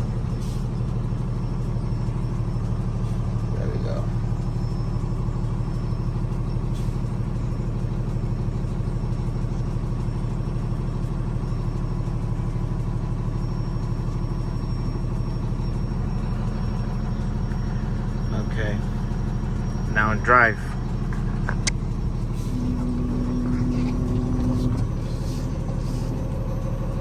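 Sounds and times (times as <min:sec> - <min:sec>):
truck engine running: 0:00.0 - 0:27.0.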